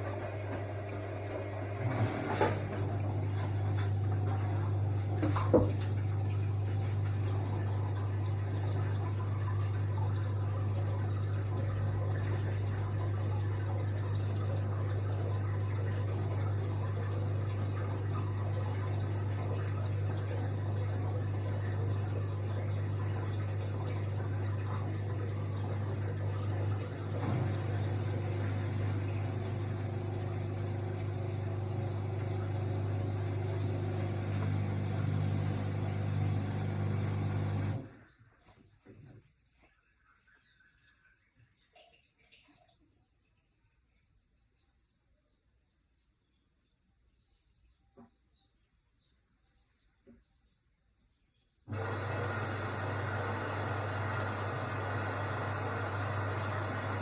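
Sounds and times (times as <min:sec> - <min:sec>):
low electrical hum: 0:00.0 - 0:38.2
water moving in washing machine: 0:00.0 - 0:42.8, 0:51.7 - 0:57.0.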